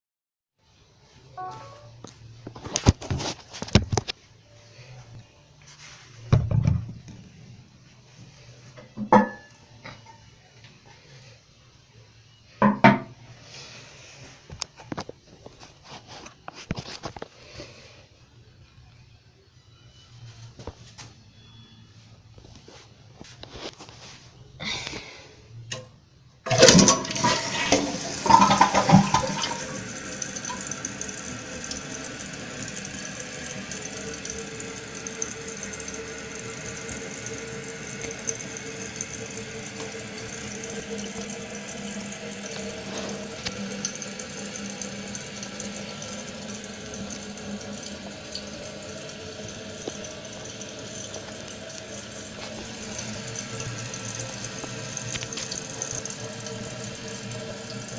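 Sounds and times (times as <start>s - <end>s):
faint held tone: 1.3s - 2.1s
toilet flushing: 26.4s - 57.9s.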